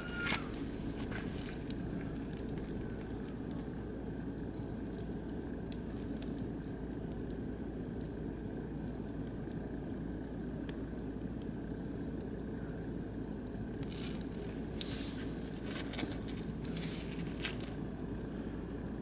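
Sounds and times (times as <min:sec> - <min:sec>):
fire hissing: 0:00.0 - 0:08.7, 0:12.3 - 0:19.0
logs crackling and popping: 0:00.0 - 0:19.0.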